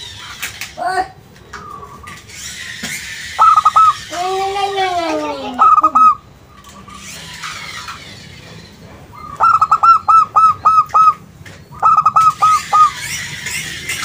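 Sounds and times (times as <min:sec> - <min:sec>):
dove cooing: 0:03.4 - 0:04.0, 0:05.3 - 0:06.2, 0:09.2 - 0:13.1.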